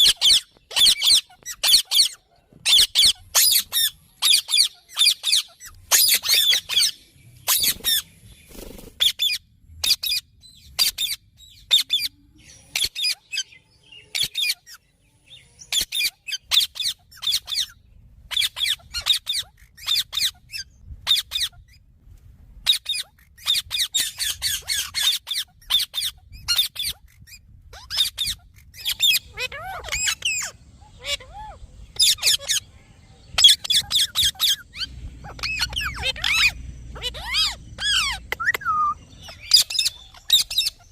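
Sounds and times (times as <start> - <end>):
parrot squawking: 0.0 - 8.0, 15.7 - 21.8, 22.6 - 32.7, 33.4 - 40.9.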